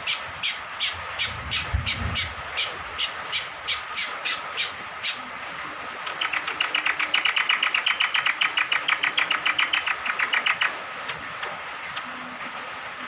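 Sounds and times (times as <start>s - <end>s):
bird chattering song: 0.0s - 5.2s, 6.0s - 10.8s.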